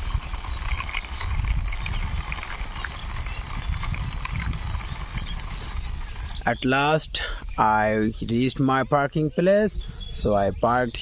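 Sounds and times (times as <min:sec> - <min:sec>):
plastic wheels rumbling on wall: 0:00.0 - 0:06.9.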